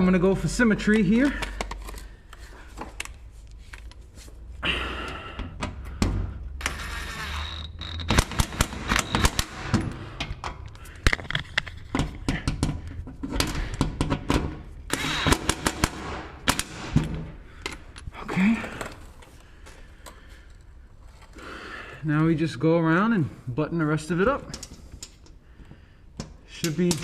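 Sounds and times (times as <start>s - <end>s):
metallic clicks and knocks: 26.2s - 27.0s.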